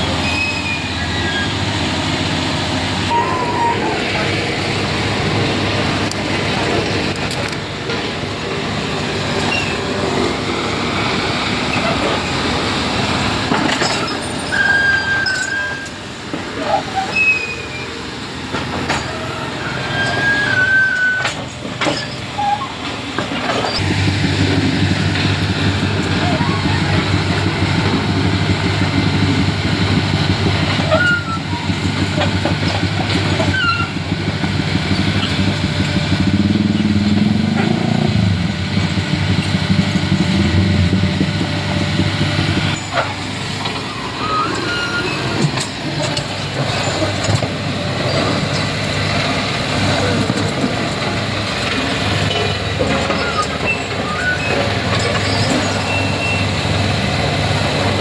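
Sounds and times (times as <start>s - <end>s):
heavy diesel engines running: 0.0s - 58.0s
engine revving: 23.8s - 44.2s.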